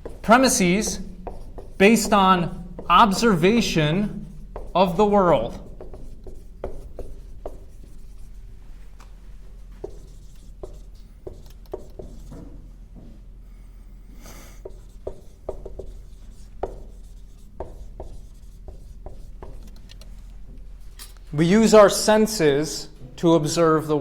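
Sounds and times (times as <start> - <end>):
writing taps on a board: 0.0 - 3.2, 4.2 - 8.2, 9.8 - 12.6, 14.6 - 20.1
scratchy stroke on a board: 0.0 - 8.4, 9.8 - 12.5, 14.1 - 19.6.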